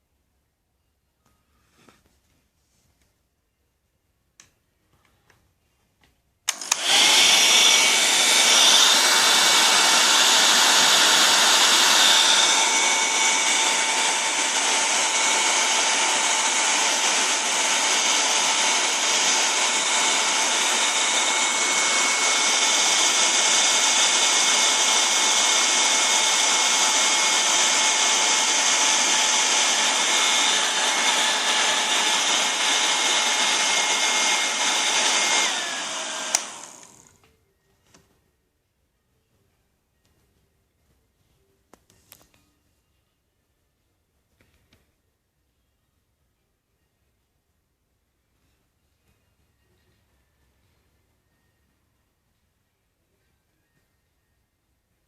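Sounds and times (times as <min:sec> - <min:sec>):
hair dryer running: 0:06.5 - 0:37.2.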